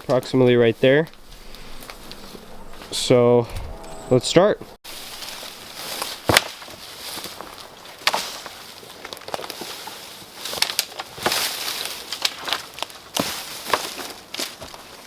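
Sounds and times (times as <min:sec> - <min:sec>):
rustling foliage: 0:00.0 - 0:15.0
branches snapping: 0:04.9 - 0:15.0.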